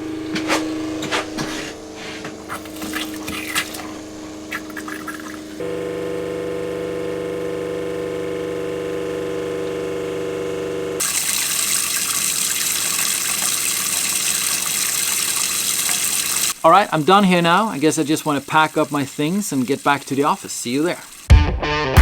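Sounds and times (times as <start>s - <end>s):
rushing hiss of water: 0.0s - 5.6s, 11.0s - 21.3s
water pump humming: 0.0s - 21.3s.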